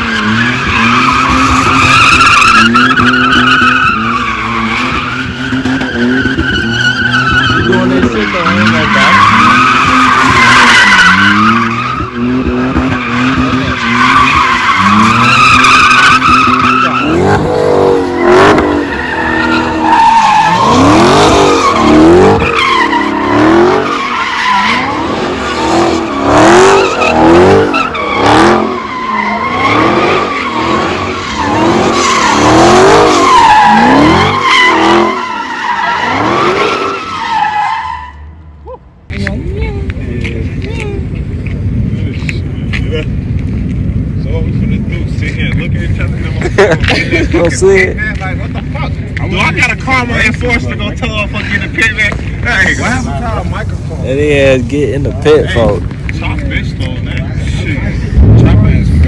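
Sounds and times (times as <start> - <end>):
tyres squealing: 0.0 - 38.2
car engine revving: 0.0 - 59.0.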